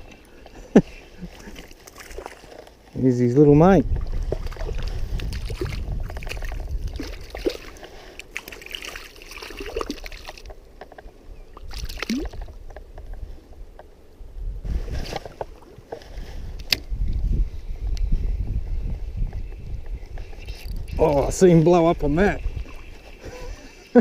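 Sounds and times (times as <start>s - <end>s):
stream water running: 0.0s - 14.2s, 14.9s - 16.9s, 19.8s - 24.0s
small clicks and splashes: 1.3s - 3.0s, 3.9s - 13.2s, 19.8s - 21.4s
wind buffeting microphone: 3.1s - 8.1s, 10.6s - 23.9s.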